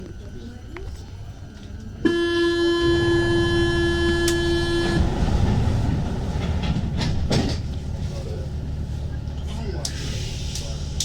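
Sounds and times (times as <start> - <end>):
train low rumble: 0.0 - 11.0
train door warning buzzer: 2.0 - 5.3.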